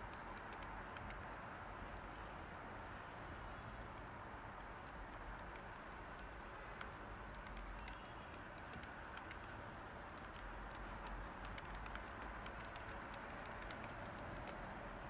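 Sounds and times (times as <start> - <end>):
keyboard key clicks: 0.0 - 1.2, 4.6 - 14.6
white noise hiss: 0.0 - 15.0.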